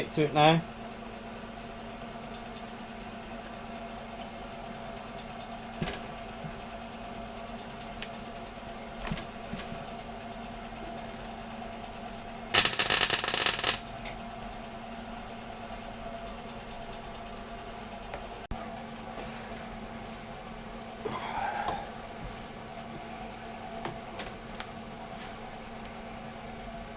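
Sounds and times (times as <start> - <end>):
electrical hum: 12.5 - 13.8
weld crackling: 12.6 - 13.8.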